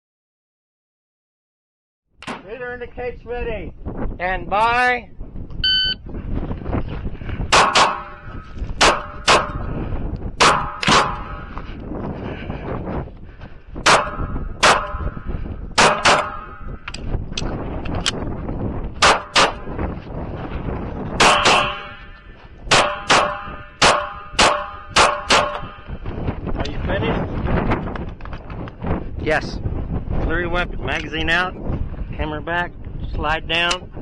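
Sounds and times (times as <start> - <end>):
wind rumbling on microphone: 2.2 - 34.0
pistol shots: 7.5 - 8.2, 8.8 - 9.6, 10.4 - 11.4, 13.8 - 15.0, 15.8 - 16.5, 19.0 - 19.6, 21.2 - 22.0, 22.7 - 25.7.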